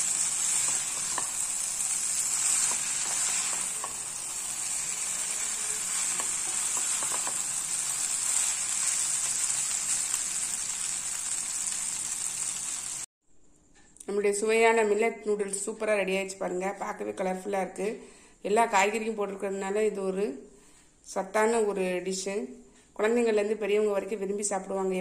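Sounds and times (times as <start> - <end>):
noodles sizzling in a pan: 0.0 - 13.1.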